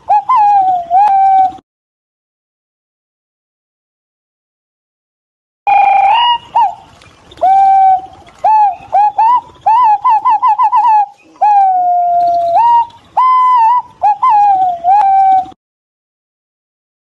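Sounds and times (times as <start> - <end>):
pigeon whistling calls: 0.0 - 1.6, 5.7 - 15.6.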